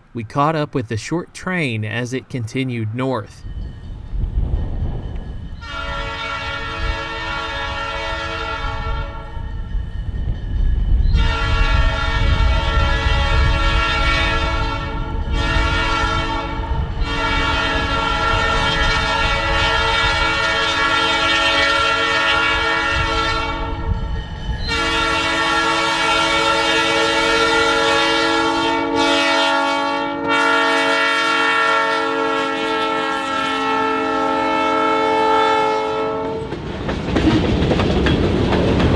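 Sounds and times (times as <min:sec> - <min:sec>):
train rumbling past: 0:00.0 - 0:38.9
locomotive air horn blasts: 0:05.6 - 0:09.4, 0:11.1 - 0:24.0, 0:24.7 - 0:36.5.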